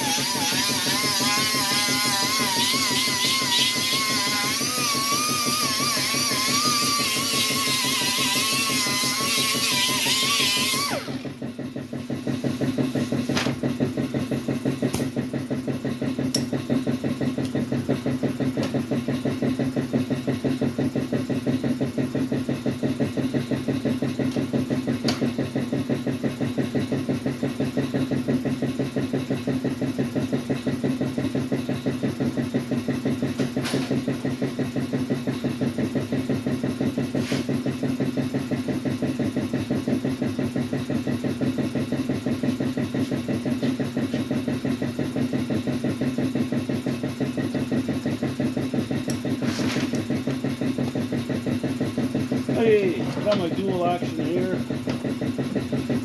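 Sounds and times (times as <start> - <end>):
piston air compressor running: 0.0 - 56.0.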